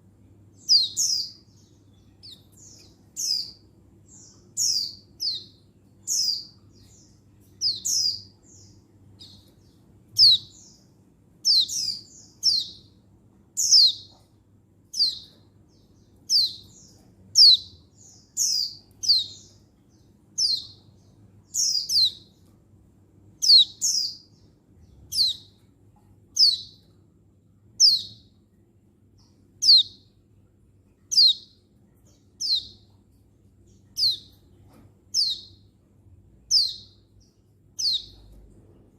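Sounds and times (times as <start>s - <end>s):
bird high chirps: 0.6s - 13.0s, 13.6s - 14.3s, 14.9s - 22.3s, 23.4s - 25.6s, 26.4s - 26.9s, 27.8s - 28.3s, 29.2s - 30.1s, 31.1s - 33.0s, 33.7s - 35.7s, 36.4s - 38.4s.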